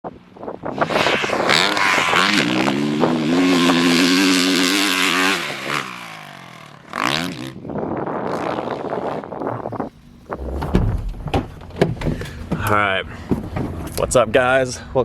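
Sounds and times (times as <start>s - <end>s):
dirt bike engine revving: 0.7s - 11.0s.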